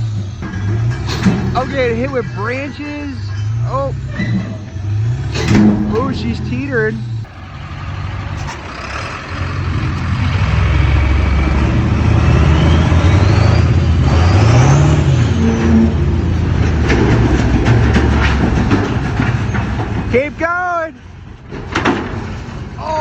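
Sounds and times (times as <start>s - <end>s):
truck engine revving under load: 0.0s - 20.4s
clicks and knocks: 4.2s - 7.3s.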